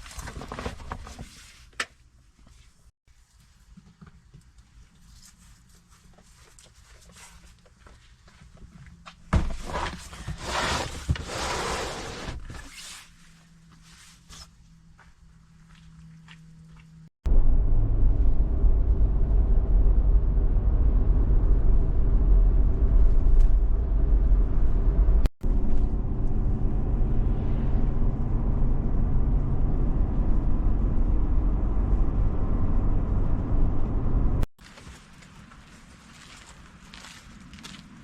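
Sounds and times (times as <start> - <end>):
car interior road rumble: 17.3 - 34.5.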